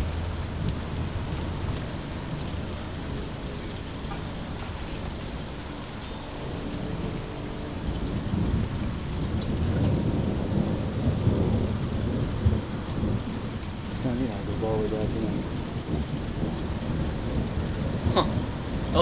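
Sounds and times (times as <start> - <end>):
steady rain: 0.0 - 19.0
low rumbling thunder: 6.4 - 19.0.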